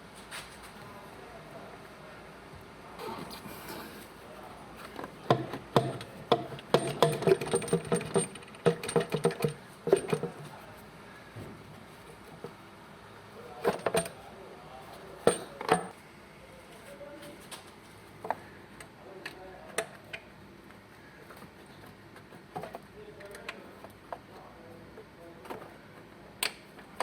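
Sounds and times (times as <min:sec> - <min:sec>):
metal tools clinking: 0:05.8 - 0:10.5, 0:15.2 - 0:15.9.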